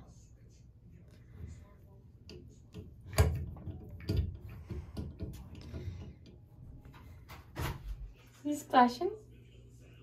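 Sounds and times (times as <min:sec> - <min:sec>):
knocks and clicks on bathtub fittings: 0:02.2 - 0:08.0.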